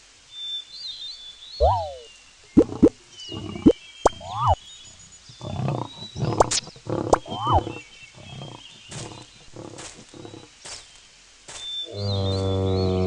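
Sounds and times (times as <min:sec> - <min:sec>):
faint bird chirps: 0:00.3 - 0:13.0
rasping animal calls: 0:02.6 - 0:04.6, 0:05.2 - 0:10.6.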